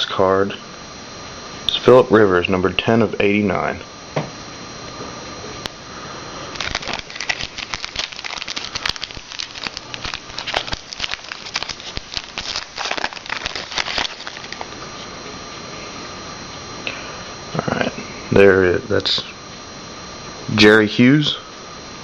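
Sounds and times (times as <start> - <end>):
wrapper tearing and crinkling: 6.5 - 14.8.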